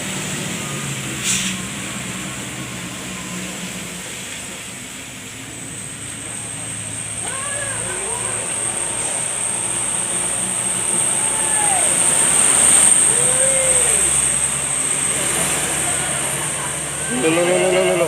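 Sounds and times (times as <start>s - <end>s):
road traffic: 0.0s - 18.0s
vehicle approaching: 0.0s - 18.0s
short rising and falling calls: 7.2s - 18.0s.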